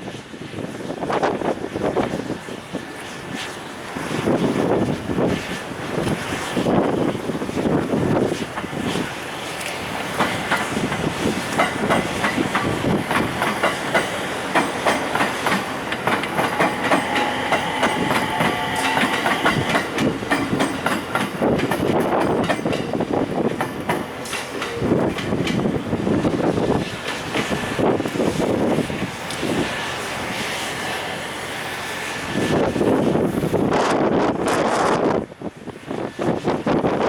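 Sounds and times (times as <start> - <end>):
train wheels clattering over joints: 8.4 - 28.4.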